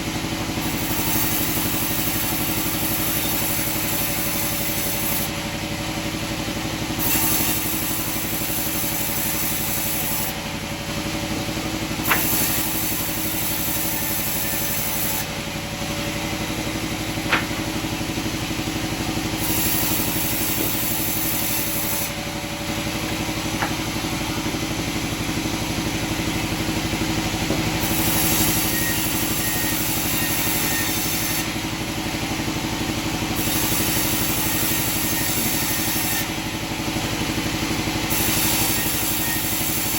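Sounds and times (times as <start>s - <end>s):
sawmill machinery running: 0.0s - 39.9s
sharp knocks: 12.1s - 12.6s, 17.2s - 17.8s, 23.1s - 23.9s.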